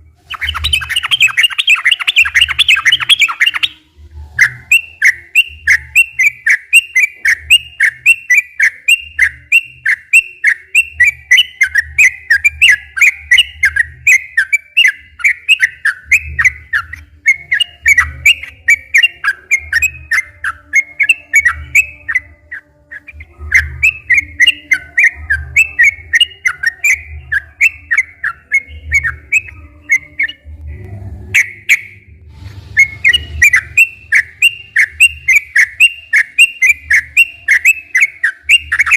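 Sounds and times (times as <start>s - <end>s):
bird singing bubbling notes: 0.3s - 30.5s, 31.3s - 32.1s.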